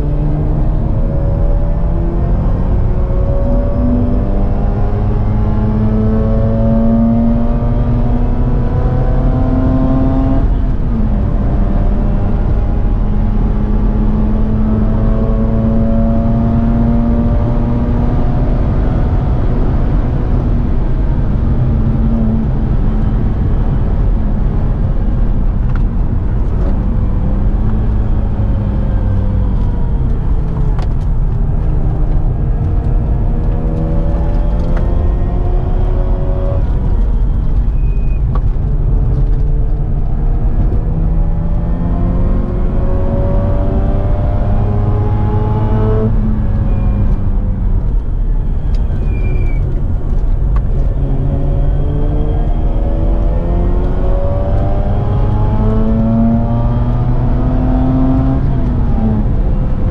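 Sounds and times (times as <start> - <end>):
road and tyre noise: 0.0 - 59.9.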